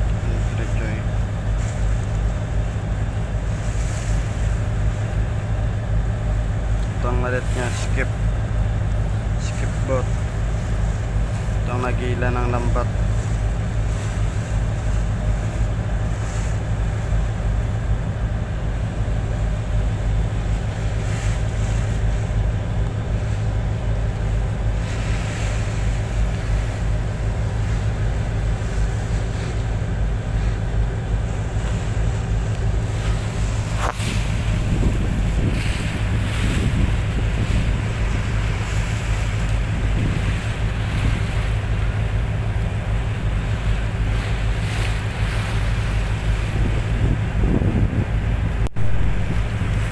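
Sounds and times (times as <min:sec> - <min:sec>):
boat engine droning: 0:00.0 - 0:49.9
water washing: 0:00.0 - 0:49.9
wind buffeting microphone: 0:13.0 - 0:49.9.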